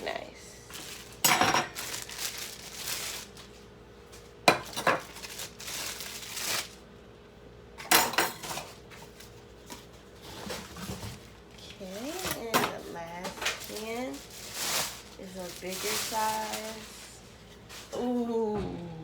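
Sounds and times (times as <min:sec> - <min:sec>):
metal cookware clinking and rattling: 0:01.2 - 0:02.0, 0:07.8 - 0:08.7.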